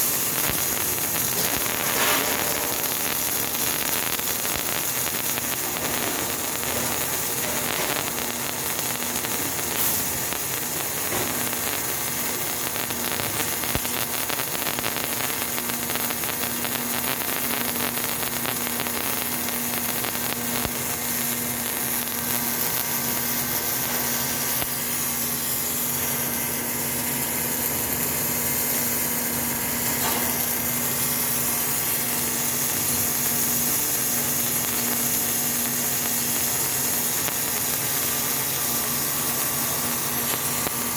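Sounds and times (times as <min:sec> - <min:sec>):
steady hum: 0:00.0 - 0:14.6
arc welding crackling hiss: 0:00.0 - 0:40.9.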